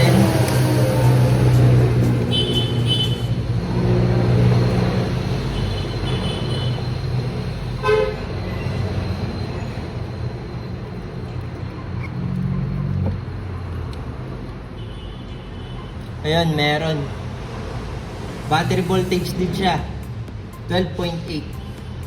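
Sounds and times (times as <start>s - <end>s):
vehicle engine passing: 0.0s - 5.6s, 16.8s - 20.5s.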